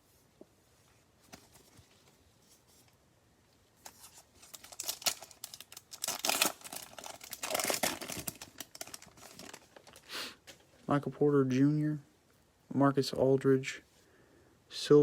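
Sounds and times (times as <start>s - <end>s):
plastic wrapper tearing and crinkling: 3.9s - 10.1s.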